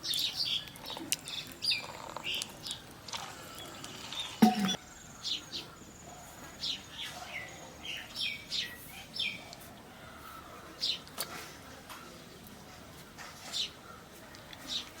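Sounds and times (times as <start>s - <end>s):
birds chirping: 0.0s - 11.2s
sharp knock: 4.4s - 4.8s.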